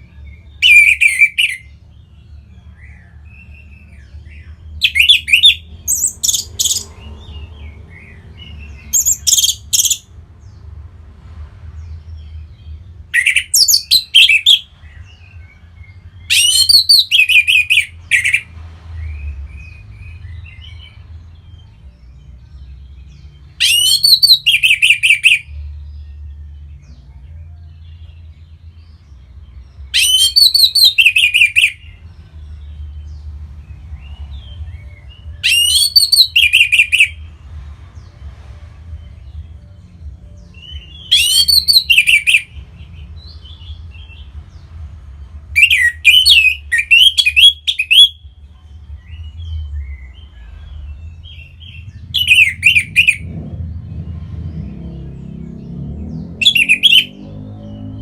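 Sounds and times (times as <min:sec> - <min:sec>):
thrush singing: 0:45.6 - 0:58.0.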